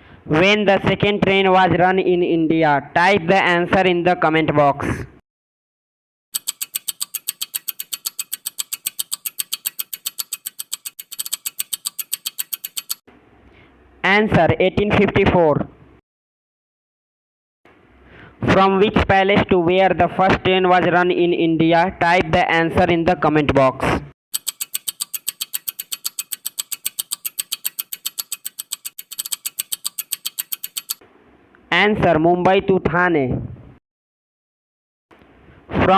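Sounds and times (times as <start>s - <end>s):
rapid timer ticking: 6.4s - 13.0s, 24.3s - 31.0s.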